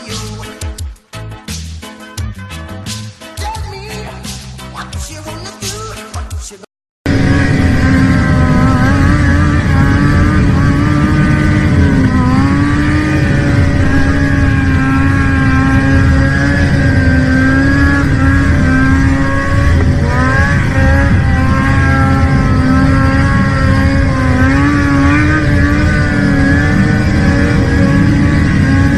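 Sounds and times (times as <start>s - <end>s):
engine running at high revs: 7.0s - 28.9s.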